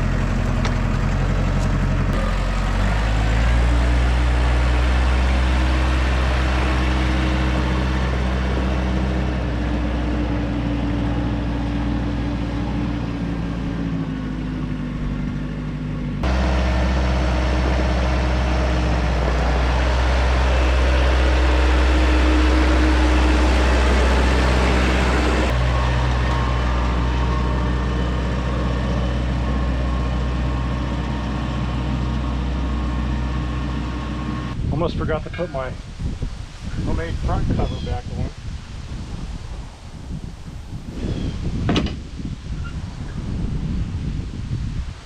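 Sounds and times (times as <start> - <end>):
tractor engine running: 0.0 - 34.6.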